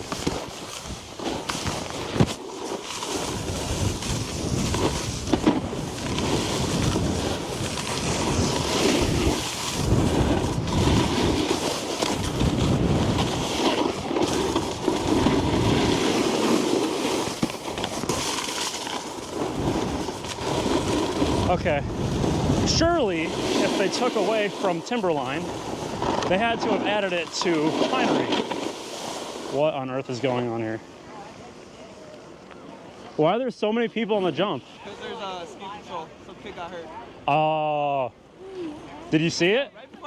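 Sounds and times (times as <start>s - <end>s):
snowboard scraping over snow: 0.0s - 30.6s
wind buffeting microphone: 3.3s - 16.0s, 19.3s - 23.9s.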